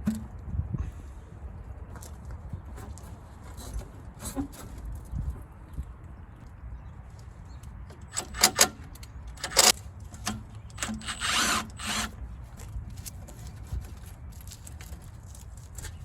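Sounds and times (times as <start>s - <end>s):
handheld power tool bursts: 8.1s - 12.2s.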